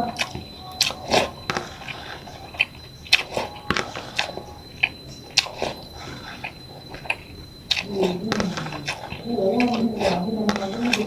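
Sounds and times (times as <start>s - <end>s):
mouth smacks and chewing clicks: 4.0s - 10.2s.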